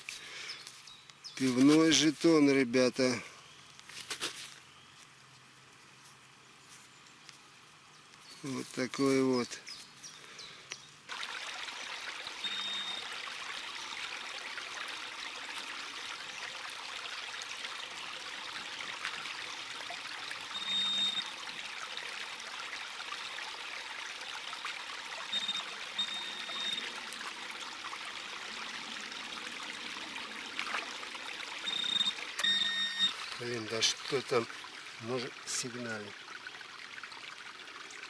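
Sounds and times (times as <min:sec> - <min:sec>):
metal detector beeping: 0:12.4 - 0:13.1, 0:20.5 - 0:21.3, 0:25.3 - 0:26.9, 0:31.6 - 0:33.2.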